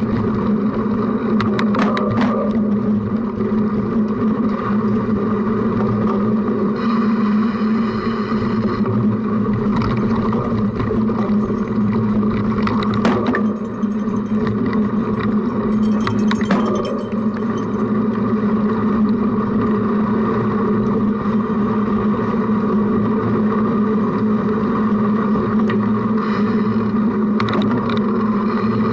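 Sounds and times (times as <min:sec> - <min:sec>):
bike rumble and rattle: 0:00.0 - 0:28.9
buzzing tone: 0:10.0 - 0:19.0.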